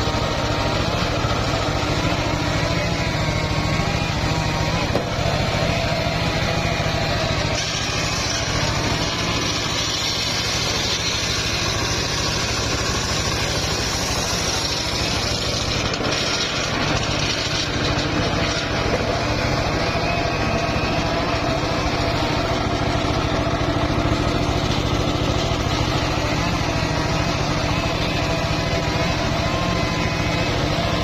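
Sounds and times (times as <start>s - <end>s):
saw blade cutting log: 0.0s - 31.0s
sawmill engine running: 0.0s - 31.0s.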